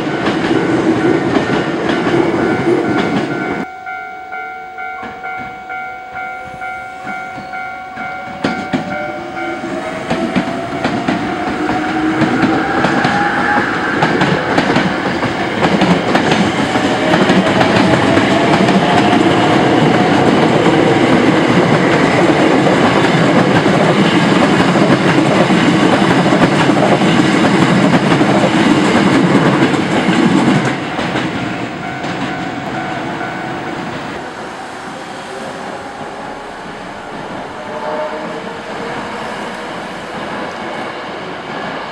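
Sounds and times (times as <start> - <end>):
pulsing ringing tone: 2.4 - 13.8
electric train motor whine: 32.7 - 40.6.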